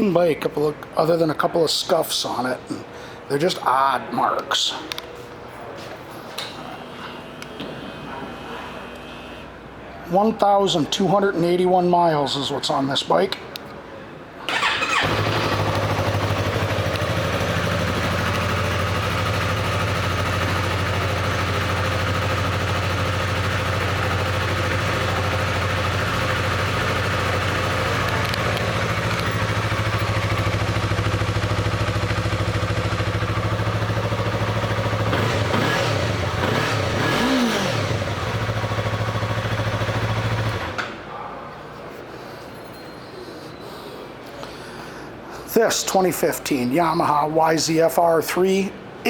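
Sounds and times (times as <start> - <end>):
motorcycle engine idling and revving: 14.5 - 40.8.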